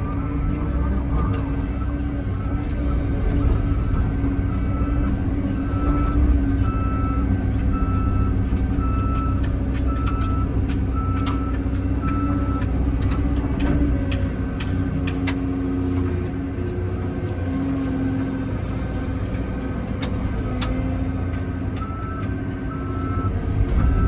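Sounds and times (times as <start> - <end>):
excavator diesel engine running: 0.0 - 24.0
sharp clicks and knocks: 7.6 - 16.4
backup alarm beeping: 21.8 - 24.0.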